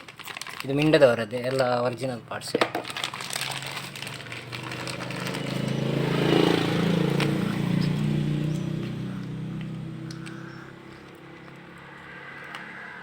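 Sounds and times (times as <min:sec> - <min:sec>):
motor vehicle engine passing: 0:03.0 - 0:13.0.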